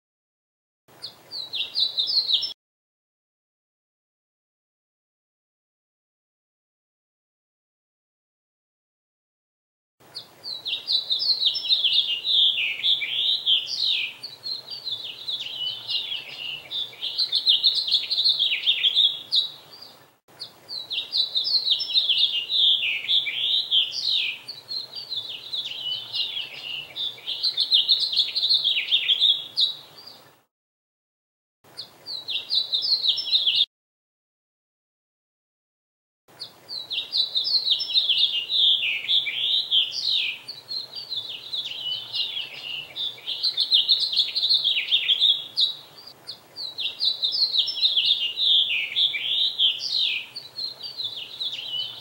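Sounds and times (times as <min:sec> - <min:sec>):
small songbirds chirping: 0:00.9 - 0:02.6, 0:10.0 - 0:30.5, 0:31.7 - 0:33.7, 0:36.3 - 0:52.0.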